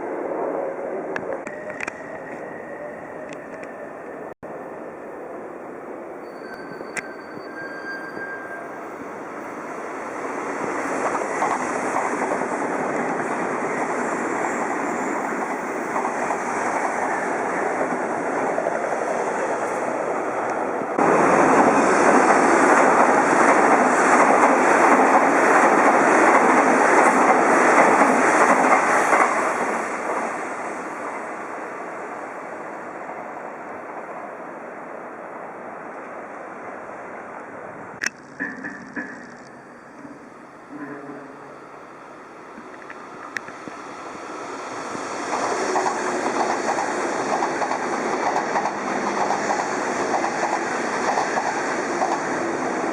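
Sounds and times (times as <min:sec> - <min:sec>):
train wheels rumbling on rail: 0:06.4 - 0:31.6, 0:37.7 - 0:41.6, 0:42.4 - 0:52.9.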